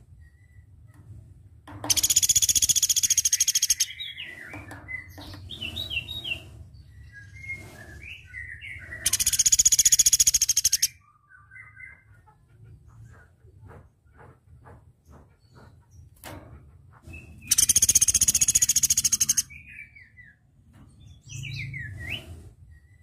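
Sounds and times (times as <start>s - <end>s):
bird rattling trills: 1.9s - 6.4s, 9.0s - 10.9s, 17.4s - 19.5s
bird chirps: 1.9s - 12.4s, 17.2s - 20.4s.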